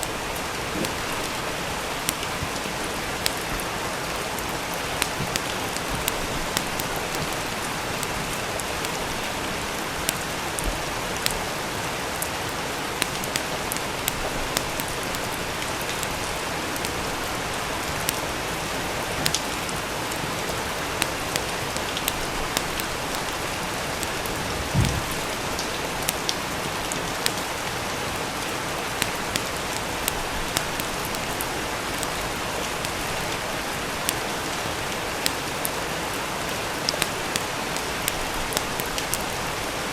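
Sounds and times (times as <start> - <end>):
rain falling: 0.0 - 39.9
wood fire crackling: 0.0 - 39.9
low thump: 24.7 - 25.2.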